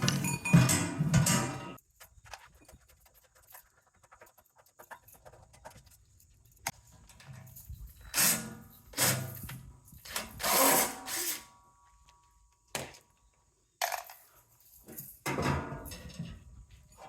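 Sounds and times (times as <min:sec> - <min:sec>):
metal tools clanking and scraping: 0:00.0 - 0:01.8, 0:06.7 - 0:10.8.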